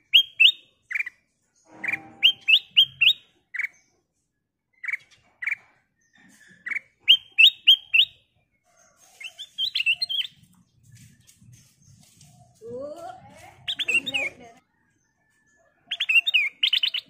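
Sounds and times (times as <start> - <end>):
bulbul chirping: 0.0 - 3.9, 4.7 - 8.3, 13.6 - 14.4.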